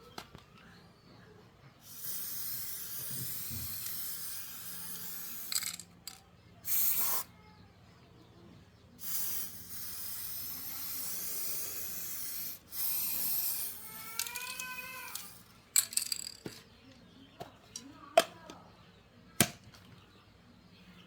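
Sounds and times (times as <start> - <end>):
hissing spray: 1.8 - 5.9, 6.6 - 7.3, 9.0 - 15.4.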